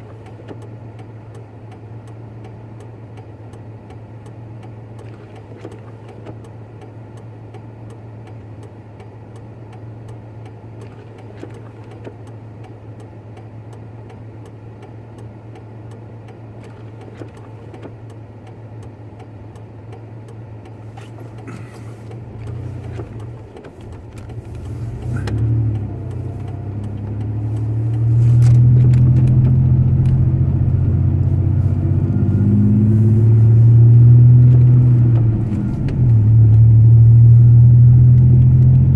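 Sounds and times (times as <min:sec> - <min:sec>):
pickup truck engine humming: 0:17.9 - 0:38.9.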